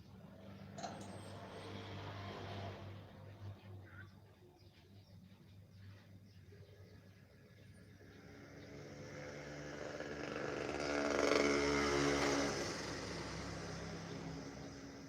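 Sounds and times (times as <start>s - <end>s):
vehicle engine passing by: 0.2s - 3.8s, 8.0s - 15.0s.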